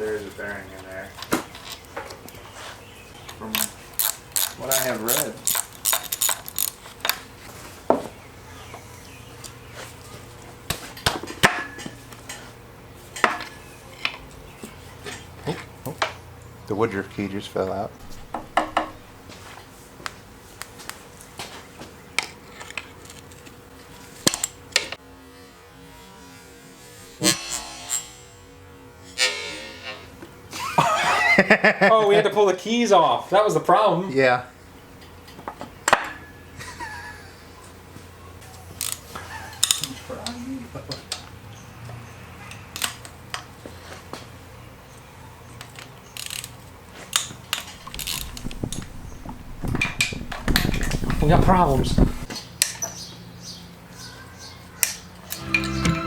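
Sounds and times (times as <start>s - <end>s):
metallic clicks of hand tools: 3.5s - 7.2s, 46.2s - 48.9s
knocks on engine parts: 18.0s - 19.1s, 48.0s - 52.3s
steady low hum: 47.8s - 52.3s.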